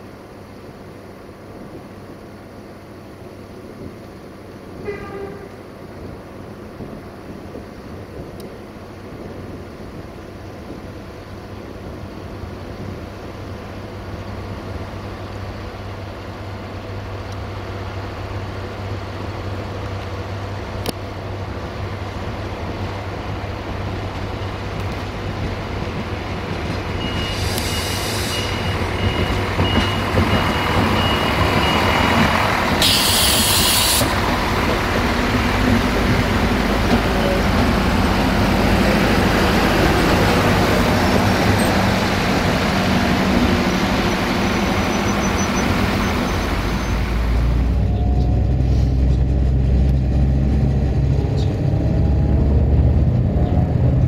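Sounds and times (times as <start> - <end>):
train engine drone: 0.0 - 54.0
train wheel noise: 0.0 - 54.0
sharp hiss of air: 27.2 - 28.7, 32.8 - 34.2.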